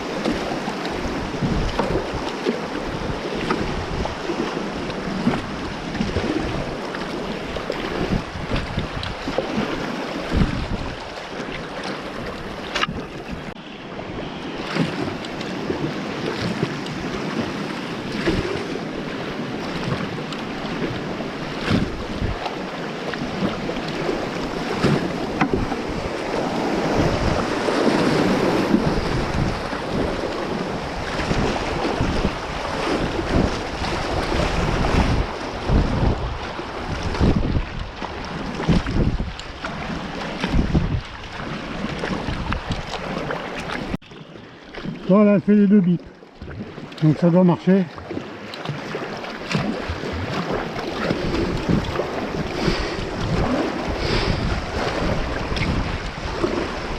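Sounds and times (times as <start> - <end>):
rushing river water: 0.0 - 56.9
water splashes: 0.0 - 56.9
wind buffeting microphone: 0.0 - 56.9.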